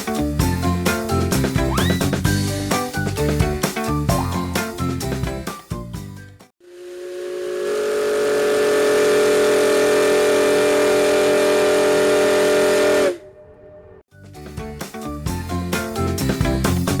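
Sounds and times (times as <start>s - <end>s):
steam whistle blast: 6.6s - 13.6s.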